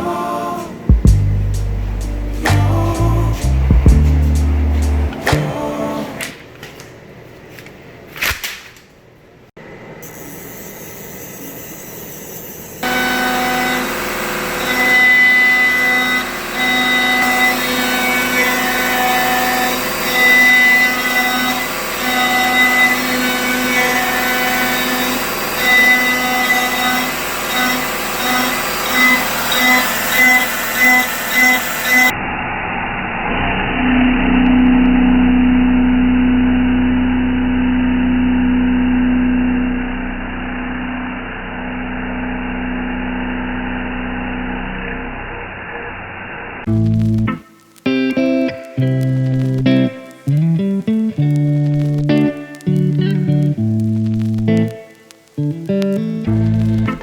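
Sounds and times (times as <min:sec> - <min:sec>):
machine hum: 0:00.0 - 0:06.4, 0:09.6 - 0:57.0
stepper motors whining: 0:10.0 - 0:57.0
sharp clicks: 0:46.7 - 0:57.0.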